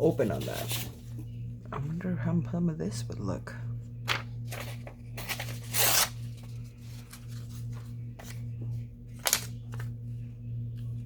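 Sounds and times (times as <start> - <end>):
steady low hum: 0.0 - 11.0
paper rustling: 4.1 - 8.5, 9.1 - 9.9
sharp paper crackle: 9.2 - 9.8.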